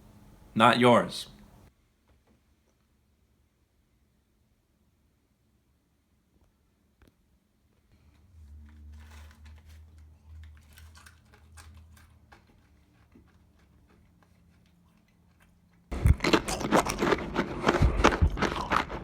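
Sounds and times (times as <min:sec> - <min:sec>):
low hum: 0:07.9 - 0:11.8, 0:15.9 - 0:19.0
loud crunching of snack chewing: 0:09.0 - 0:19.0.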